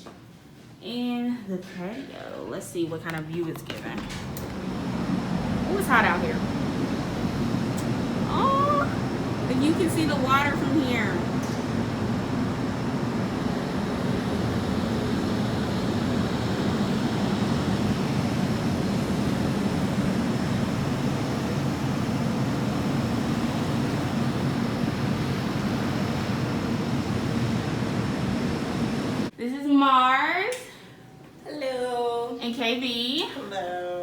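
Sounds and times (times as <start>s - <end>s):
low wavering hum: 4.2s - 29.3s.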